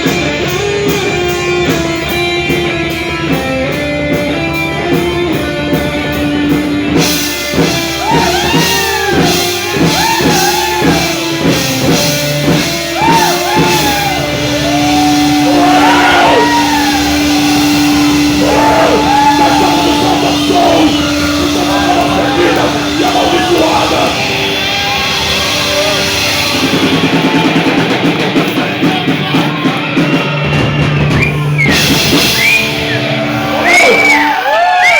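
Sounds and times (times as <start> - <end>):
live rock band playing: 0.0 - 34.9
person shouting or singing: 13.0 - 24.4.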